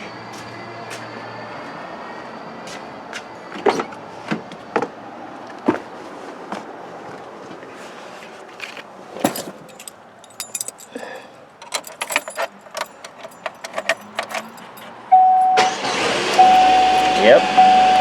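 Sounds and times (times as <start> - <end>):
car keys jingling: 8.6 - 17.9.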